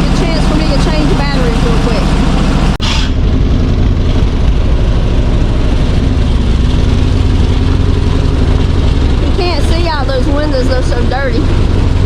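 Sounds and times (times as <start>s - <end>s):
truck engine idling: 0.0s - 12.0s
brief hiss: 2.8s - 3.2s.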